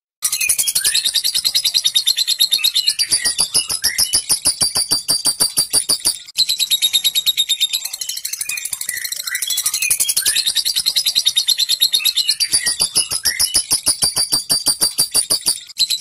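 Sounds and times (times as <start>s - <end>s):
whistled bird notes: 0.2s - 16.0s
lovebird chattering rattle: 3.0s - 6.4s, 12.3s - 16.0s.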